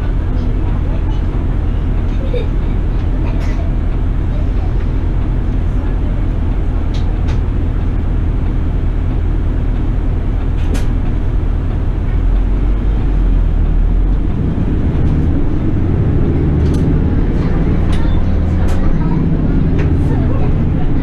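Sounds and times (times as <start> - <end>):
bus engine and road noise: 0.0 - 21.0
faint rising engine tone: 12.1 - 21.0.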